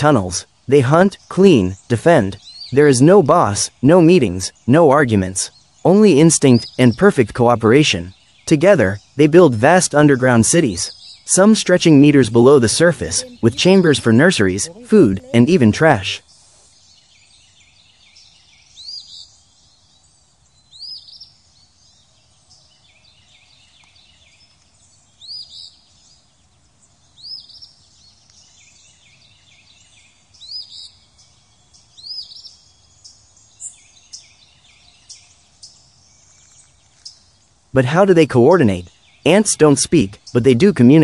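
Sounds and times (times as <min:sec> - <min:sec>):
bird repeating rising call: 0:00.0 - 0:16.7
faint bird chirping: 0:00.0 - 0:41.0.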